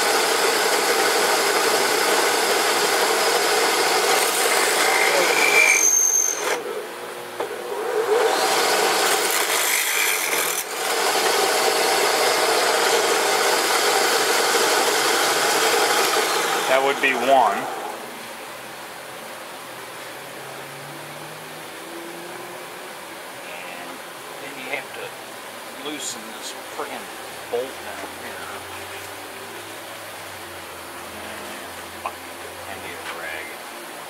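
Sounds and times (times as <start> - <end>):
drill press grinding metal: 0.0 - 6.7, 7.7 - 18.0.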